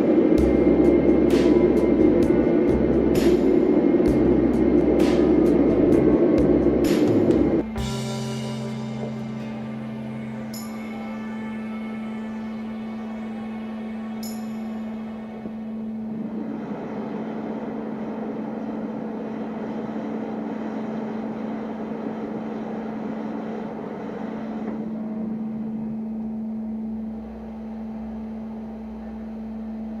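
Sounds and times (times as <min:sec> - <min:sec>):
blower rushing roar: 0:00.0 - 0:30.0
furnace hum: 0:00.0 - 0:30.0.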